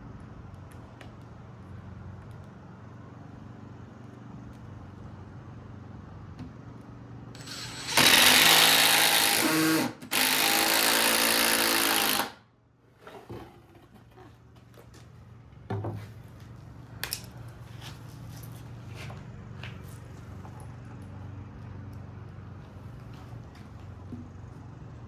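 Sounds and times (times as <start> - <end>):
power drill running: 7.3 - 12.4.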